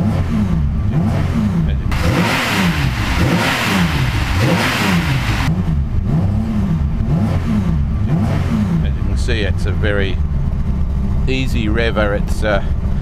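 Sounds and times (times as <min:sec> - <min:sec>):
race engine revving: 0:00.0 - 0:09.2.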